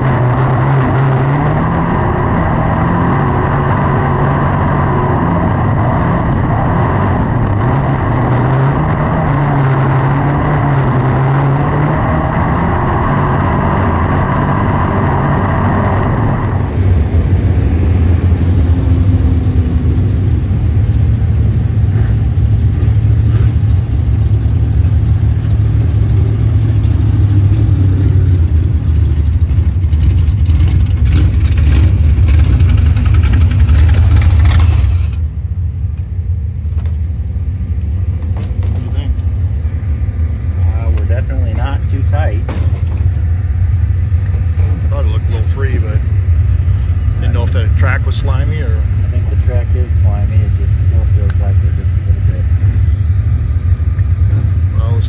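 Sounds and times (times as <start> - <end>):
loud deep engine: 0.0 - 55.0
race car engines revving: 0.0 - 55.0.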